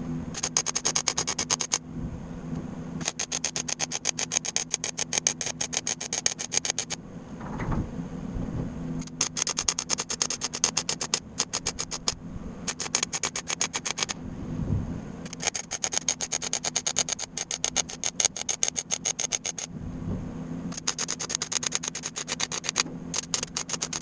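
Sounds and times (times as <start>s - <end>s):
steady low hum: 0.0s - 24.0s
tool clicking rapidly: 0.3s - 1.8s, 3.0s - 7.0s, 9.0s - 14.2s, 15.2s - 19.7s, 20.7s - 24.0s.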